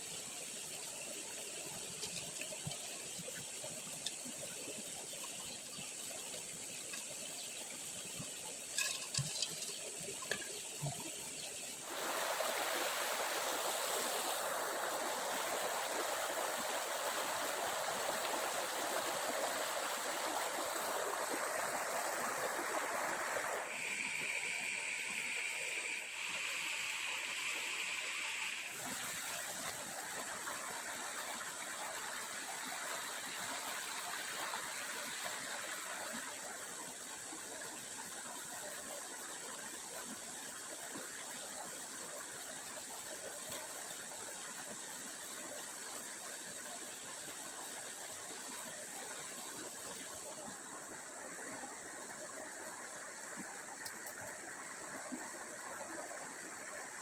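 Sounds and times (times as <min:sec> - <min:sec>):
stream water running: 0:00.0 - 0:57.0.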